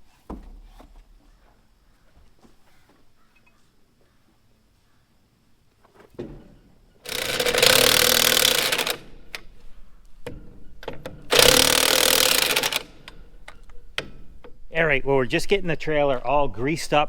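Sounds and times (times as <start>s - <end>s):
impact wrench bursts: 7.0s - 9.5s, 11.3s - 13.2s.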